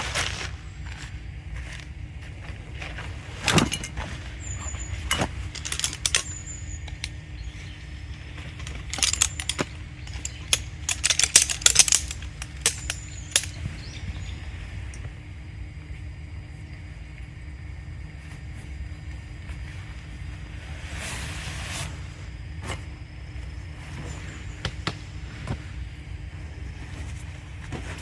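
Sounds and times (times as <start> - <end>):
camping gear clinking and rattling: 0.0 - 15.9, 22.6 - 28.0
low steady rumble: 0.0 - 28.0.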